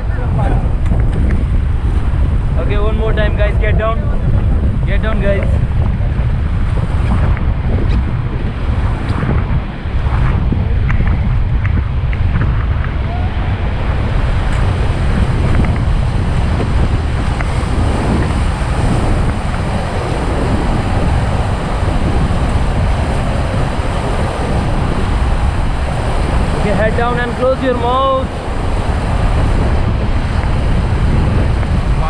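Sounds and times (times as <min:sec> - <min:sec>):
wind buffeting microphone: 0:00.0 - 0:32.0
whitewater rushing and splashing: 0:12.3 - 0:32.0.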